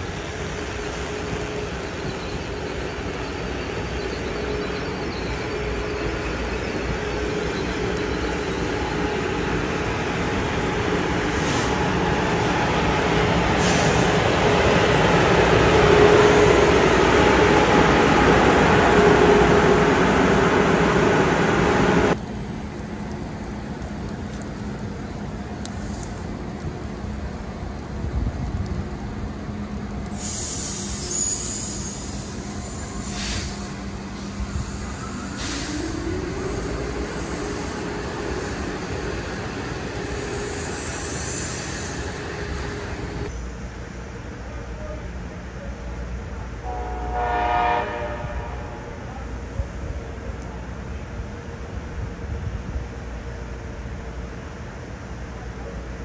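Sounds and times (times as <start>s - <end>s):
high hiss: 0.0s - 22.2s, 29.9s - 45.7s
electric locomotive hum: 0.0s - 56.0s
train wheels rumbling on rail: 0.0s - 56.0s.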